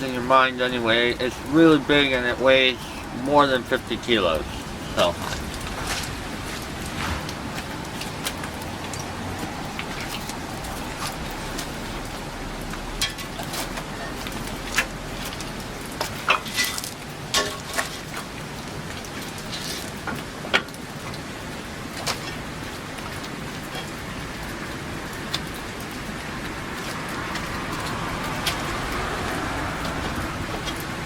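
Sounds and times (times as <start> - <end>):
steady background hiss: 0.0 - 13.8.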